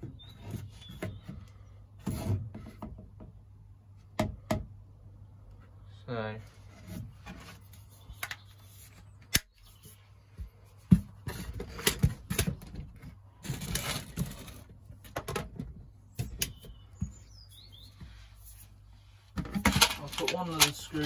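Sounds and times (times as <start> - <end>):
rattling and rustling of parts: 10.4 - 21.0.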